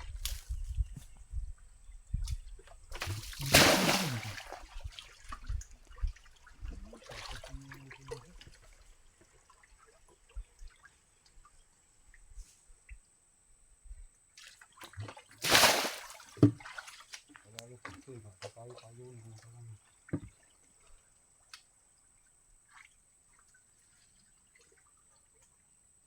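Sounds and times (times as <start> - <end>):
pond water splashing and sloshing: 2.6 - 11.5, 14.4 - 25.8
water drips: 3.0 - 10.8.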